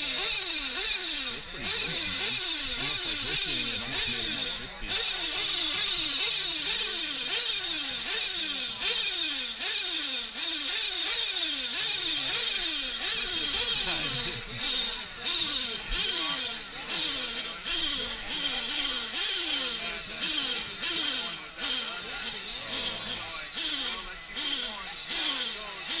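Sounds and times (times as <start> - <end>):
rc truck engines revving: 0.0 - 26.0
high steady whine: 11.9 - 26.0.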